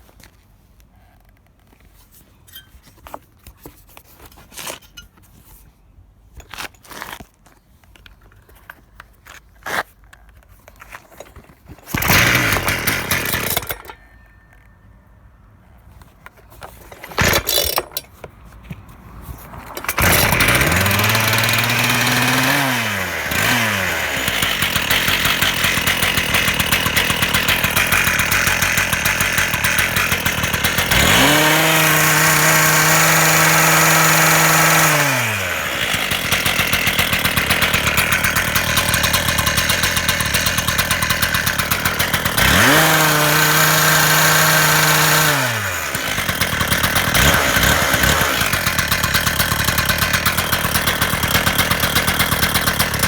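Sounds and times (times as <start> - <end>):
starter cord pulls: 9.3 - 14.7, 16.2 - 53.0
two-stroke cutter engine revving: 11.9 - 14.0, 19.8 - 53.0.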